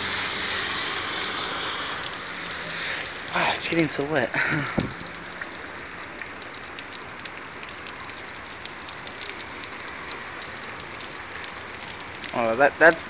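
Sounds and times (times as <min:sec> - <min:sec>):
heavy rain hiss: 0:00.0 - 0:06.2, 0:09.2 - 0:13.0
raindrops hitting hard surfaces: 0:00.0 - 0:13.0.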